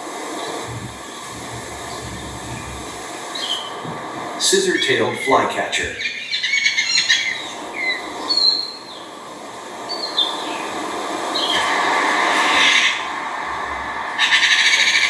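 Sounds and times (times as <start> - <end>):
steady rushing hiss: 0.0 - 15.0
bird chirping: 6.0 - 9.0.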